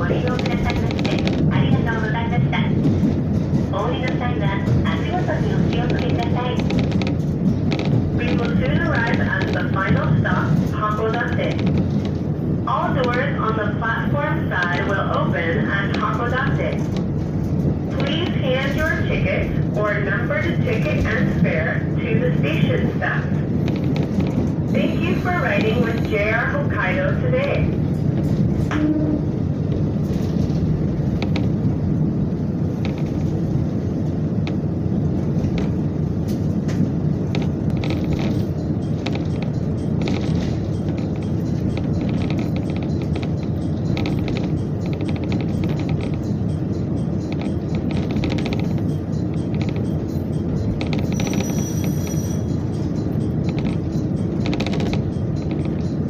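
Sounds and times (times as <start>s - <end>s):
train railcar rumble: 0.0s - 56.0s
wheel and carriage clicks: 2.9s - 12.3s, 34.3s - 56.0s.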